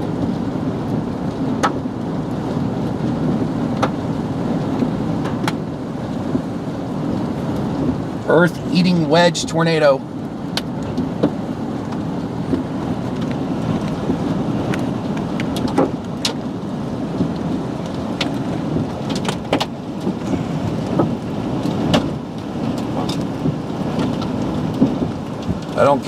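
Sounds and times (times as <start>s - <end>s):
heavy rain and wind on car: 0.0s - 26.0s
raindrops ticking on glass: 10.1s - 26.0s.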